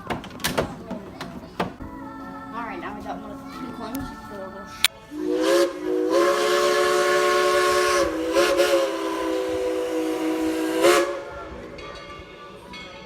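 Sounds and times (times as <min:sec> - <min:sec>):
steam hissing: 0:05.1 - 0:11.8
steam locomotive whistle blasts: 0:05.1 - 0:11.8.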